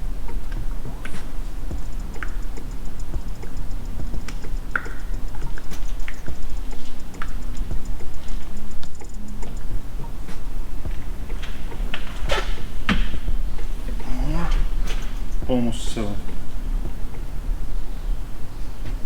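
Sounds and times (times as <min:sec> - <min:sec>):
steady low hum: 0:00.0 - 0:19.0
fast light ticks: 0:00.1 - 0:13.7.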